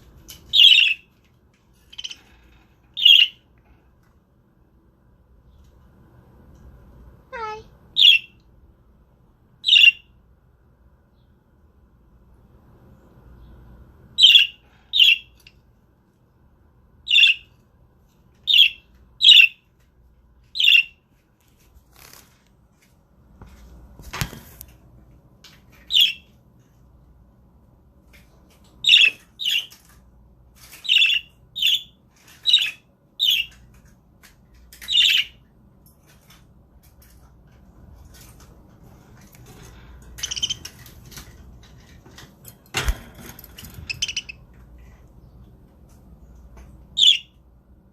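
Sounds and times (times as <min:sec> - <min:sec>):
budgerigars chirping: 0:09.6 - 0:10.0, 0:40.2 - 0:40.7, 0:43.9 - 0:44.4, 0:47.0 - 0:47.3.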